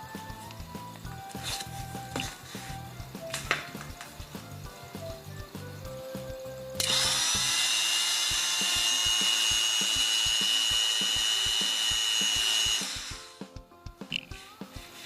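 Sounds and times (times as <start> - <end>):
rotary tool whining and grinding: 6.8 - 13.4.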